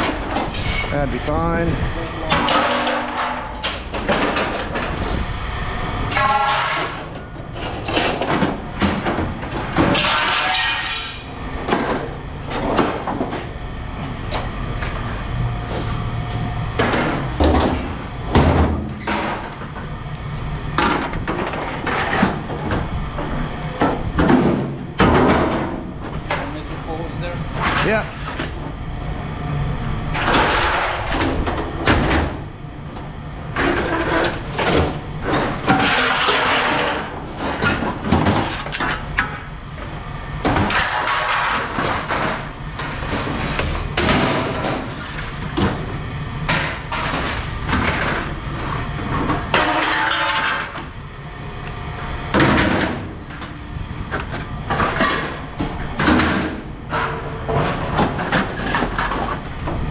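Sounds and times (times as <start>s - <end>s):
low machine rumble: 0.0s - 59.9s
scrap metal clanking: 2.2s - 5.2s, 6.1s - 8.3s, 9.7s - 11.3s.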